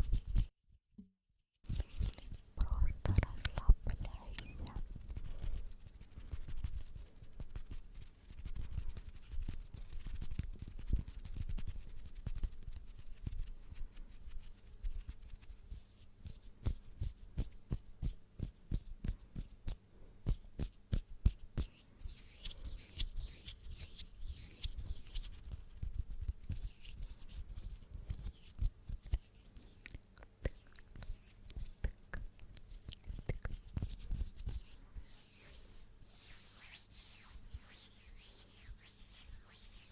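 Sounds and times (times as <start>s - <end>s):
soft clicks and taps: 3.0s - 4.8s
rubbing rustle: 32.8s - 39.9s.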